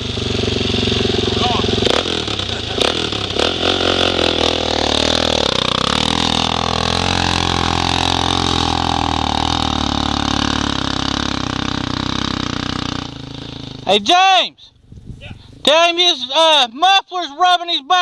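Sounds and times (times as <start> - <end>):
small off-road vehicle engine: 0.0 - 14.1.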